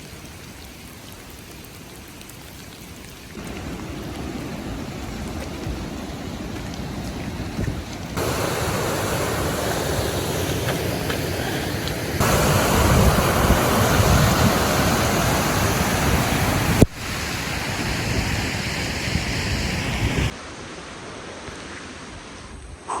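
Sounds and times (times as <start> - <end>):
heavy rain falling: 0.0 - 20.3.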